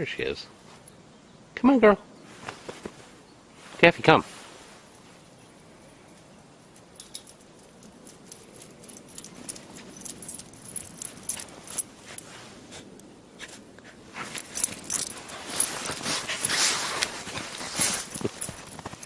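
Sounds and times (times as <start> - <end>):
footsteps crunching through snow: 9.5 - 19.0.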